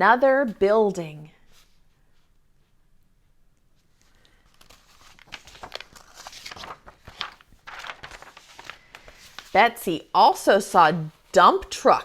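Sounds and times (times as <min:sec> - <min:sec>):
paper rustling and crinkling: 0:03.8 - 0:09.6.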